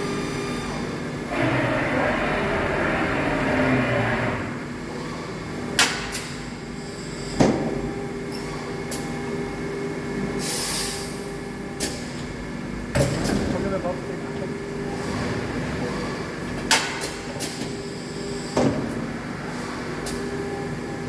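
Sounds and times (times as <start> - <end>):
milling machine humming: 0.0 - 5.8, 12.4 - 16.7.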